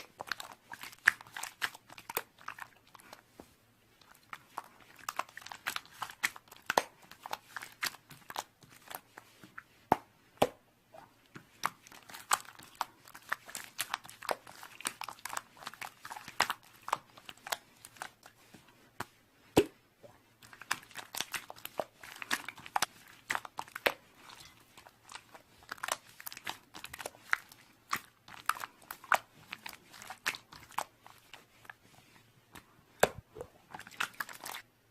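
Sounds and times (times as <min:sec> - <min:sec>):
slime crackling and popping: 0:04.0 - 0:09.0, 0:11.5 - 0:18.2, 0:20.4 - 0:31.5, 0:33.8 - 0:34.6.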